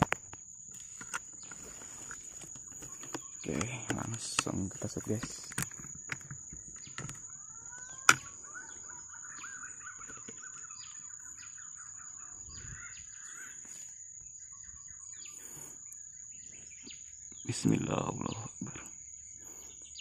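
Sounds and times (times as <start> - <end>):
bird chirping: 0.0 - 20.0
high insect whine: 0.0 - 20.0.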